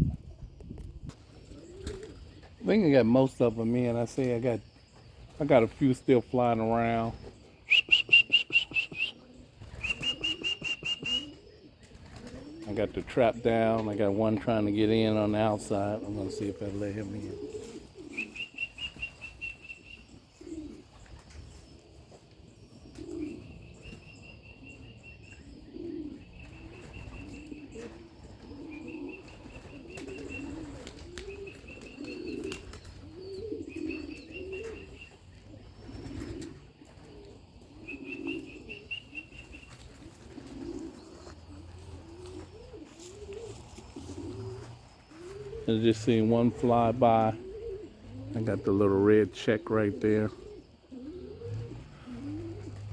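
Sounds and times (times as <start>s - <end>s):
pigeons cooing: 0.0s - 52.9s
high trilled bird calls: 6.8s - 12.0s, 17.1s - 21.8s, 37.7s - 49.0s.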